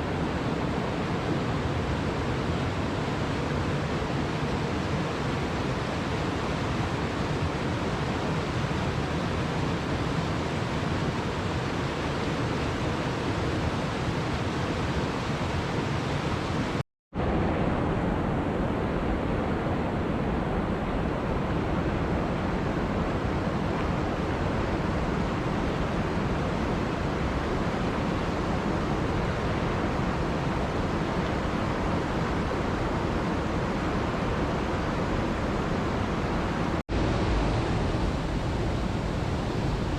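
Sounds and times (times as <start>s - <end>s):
waterfall rushing: 22.1s - 39.9s.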